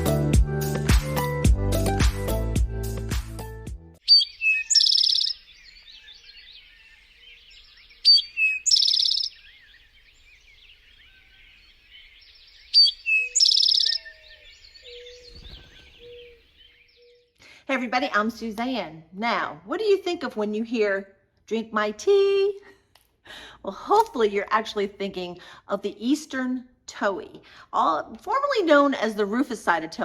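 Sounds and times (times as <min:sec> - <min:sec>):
bird song with trill: 0:04.0 - 0:17.4.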